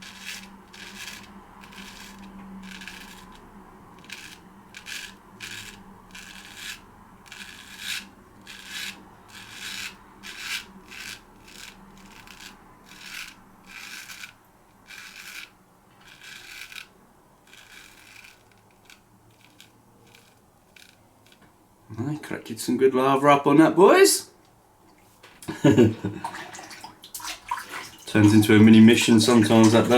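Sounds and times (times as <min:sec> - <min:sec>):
razor scraping stubble: 0:00.0 - 0:21.5.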